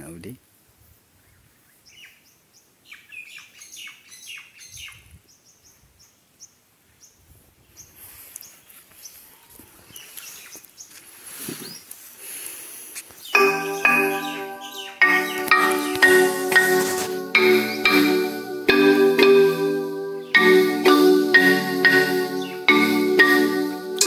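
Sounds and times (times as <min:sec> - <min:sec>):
bird chirping: 0:01.2 - 0:11.0, 0:13.1 - 0:18.5, 0:20.2 - 0:24.0.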